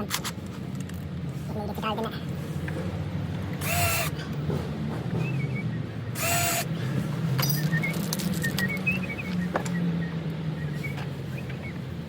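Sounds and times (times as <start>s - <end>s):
cordless drill bursts: 3.6s - 4.2s, 6.2s - 6.7s.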